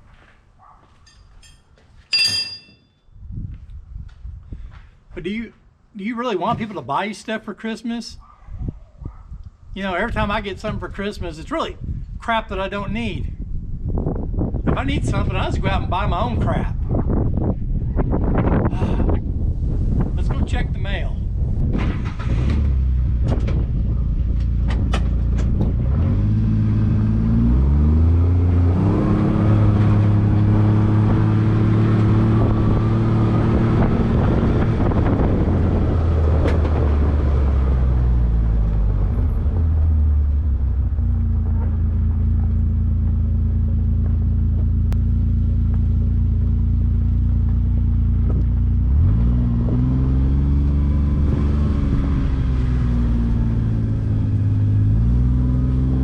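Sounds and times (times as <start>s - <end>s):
utility vehicle engine: 21.3s - 56.0s.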